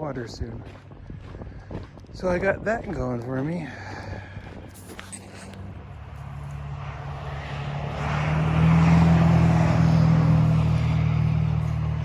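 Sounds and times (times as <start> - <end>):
engine droning: 3.0 - 12.0.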